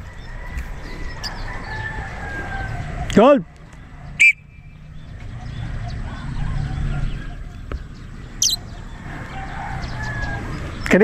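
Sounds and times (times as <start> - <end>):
shrill bird calls: 3.8 - 7.7, 8.4 - 8.8.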